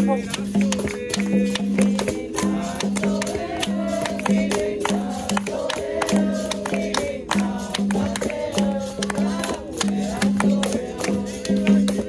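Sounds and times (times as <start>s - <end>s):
group of voices singing: 0.0s - 12.0s
pandeiro strokes: 0.0s - 12.0s.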